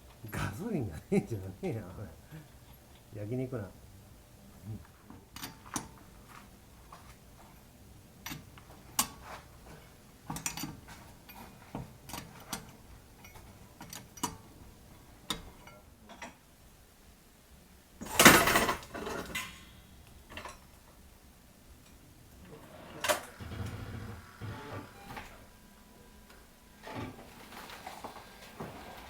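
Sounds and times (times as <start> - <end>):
loud burst of noise: 22.4 - 25.9.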